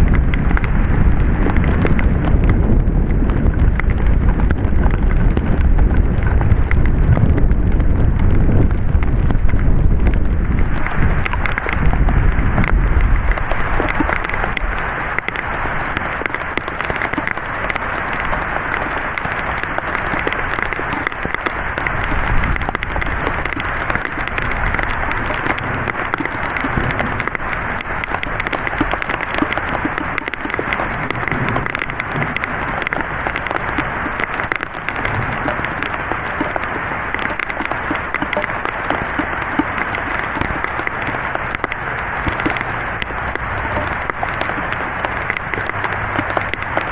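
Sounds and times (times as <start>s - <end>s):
gust of wind rumbling: 0.0s - 14.5s
heavy rain pouring: 0.0s - 46.9s.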